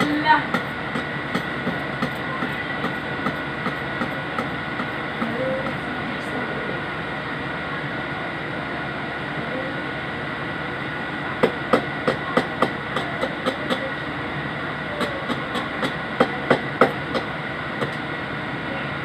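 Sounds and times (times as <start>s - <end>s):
sharp rapid taps: 0.0s - 5.3s, 11.4s - 13.9s
steady hum with high whine: 0.0s - 19.0s.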